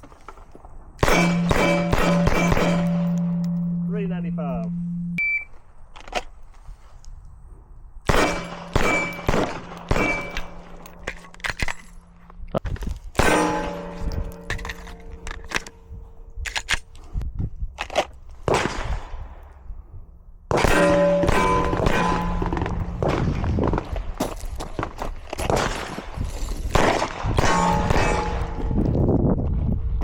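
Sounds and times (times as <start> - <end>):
gunshots with metallic ring: 1.0 - 5.1, 8.1 - 12.2, 13.2 - 15.3, 20.5 - 23.6, 26.7 - 28.9.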